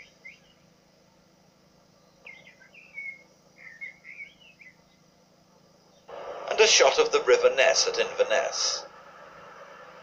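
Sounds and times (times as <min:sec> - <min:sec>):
small songbird chirping: 0:00.0 - 0:01.0, 0:01.6 - 0:06.1
faint steady hiss: 0:00.0 - 0:10.0.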